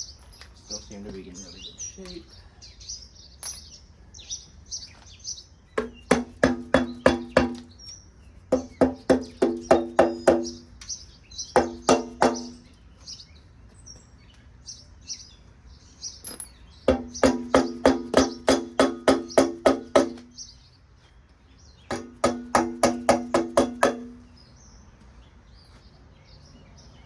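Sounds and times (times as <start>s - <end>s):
songbirds chirping: 0.0s - 27.0s
rapid ringing knocks: 5.8s - 7.7s, 8.5s - 10.6s, 11.6s - 12.7s, 16.9s - 20.4s, 21.9s - 24.3s.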